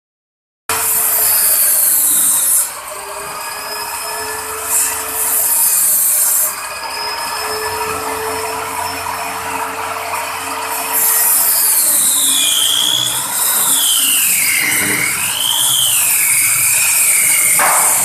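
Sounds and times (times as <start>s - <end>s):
saw cutting into wood: 0.7s - 6.7s, 10.7s - 18.0s
power saw whining: 0.7s - 18.0s.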